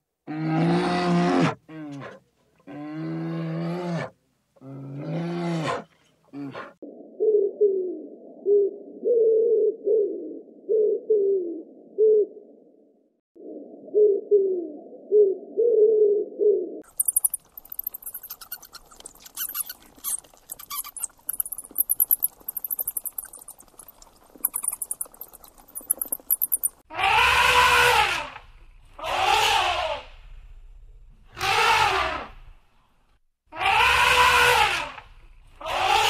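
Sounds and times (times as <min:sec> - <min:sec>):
dove cooing: 0:07.0 - 0:12.4, 0:13.5 - 0:19.3
rat squeaking: 0:16.9 - 0:26.8.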